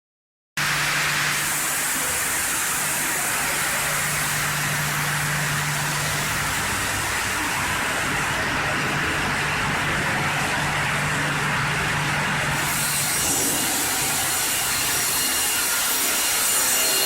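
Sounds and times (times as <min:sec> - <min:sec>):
saw machine hum: 0:00.6 - 0:17.0
saw hiss: 0:12.6 - 0:17.0.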